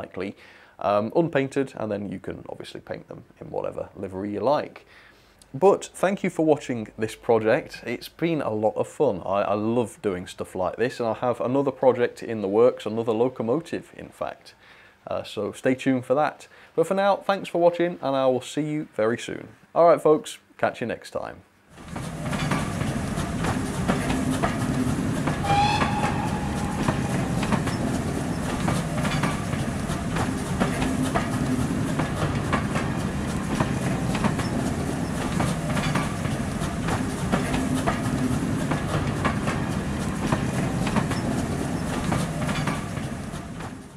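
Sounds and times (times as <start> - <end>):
train coaches rumbling past: 21.7 - 43.9
wheels clicking over rail joints: 21.7 - 43.9
short whistle: 25.4 - 27.9.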